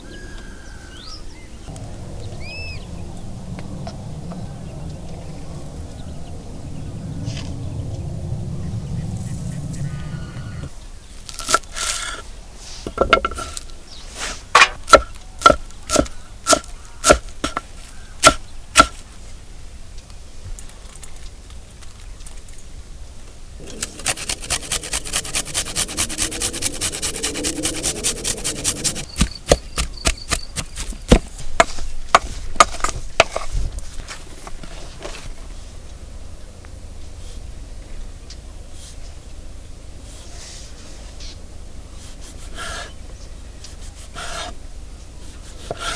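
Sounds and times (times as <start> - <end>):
knife chopping on wooden board: 14.6 - 19.0, 23.7 - 33.4, 45.6 - 45.9.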